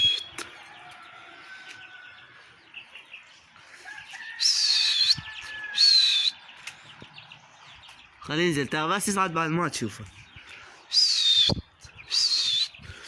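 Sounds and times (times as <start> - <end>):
shrill human whistles: 0.0 - 0.4, 4.4 - 6.4, 10.9 - 12.8
faint bird chirping: 0.0 - 13.0.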